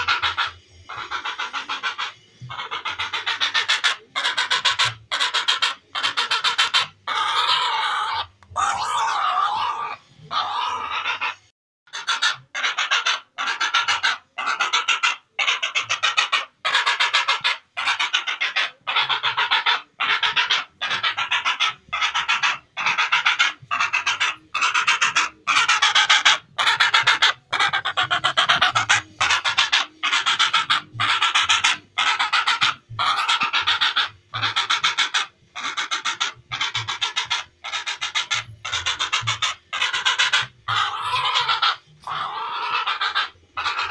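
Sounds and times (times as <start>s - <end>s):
heron croaking: 0.0s - 43.9s.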